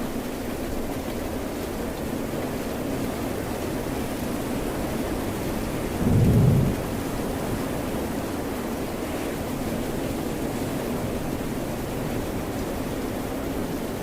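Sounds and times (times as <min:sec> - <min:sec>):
steady rain: 0:00.0 - 0:14.0
ocean surf: 0:05.8 - 0:07.6
low rumble: 0:05.9 - 0:07.5.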